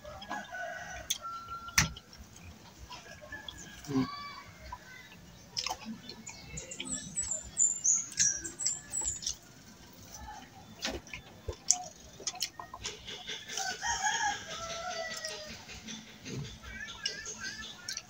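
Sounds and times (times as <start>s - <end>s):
small bird chirping: 4.8s - 9.5s.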